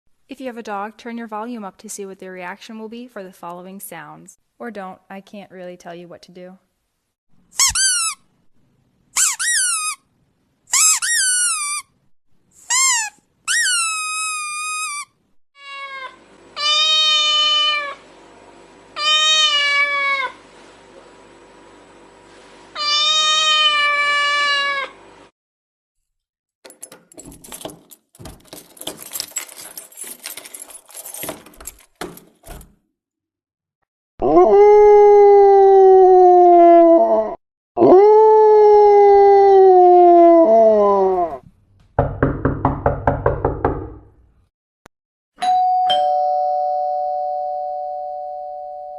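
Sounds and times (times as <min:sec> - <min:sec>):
high squeaky animal cries: 0:07.6 - 0:08.2, 0:12.7 - 0:18.0, 0:19.0 - 0:20.4, 0:22.8 - 0:25.0
cat meowing: 0:15.6 - 0:18.0, 0:19.0 - 0:20.4, 0:22.8 - 0:25.0
long howls falling in pitch: 0:34.2 - 0:41.4.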